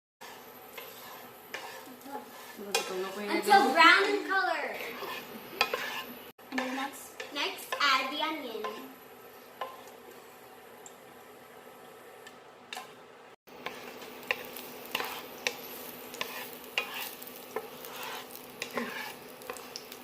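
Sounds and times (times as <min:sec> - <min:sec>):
spatula scraping a pan: 0:00.2 - 0:10.4, 0:13.5 - 0:20.0
garlic and onion sizzling in oil: 0:00.2 - 0:20.0.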